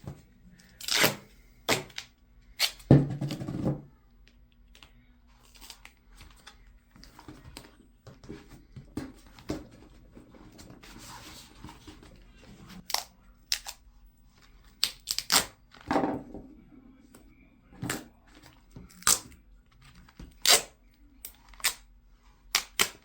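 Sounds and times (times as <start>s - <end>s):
duct tape snapping: 14.8s - 15.6s, 20.4s - 21.8s, 22.5s - 23.0s.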